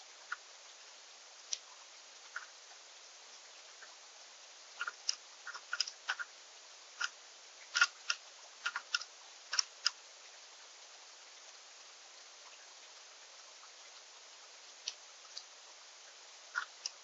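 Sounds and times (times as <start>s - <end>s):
faint hiss: 0.0s - 17.0s
birds pecking and cracking seeds: 1.4s - 2.6s, 4.8s - 6.3s, 7.0s - 10.0s, 14.8s - 15.5s, 16.5s - 17.0s.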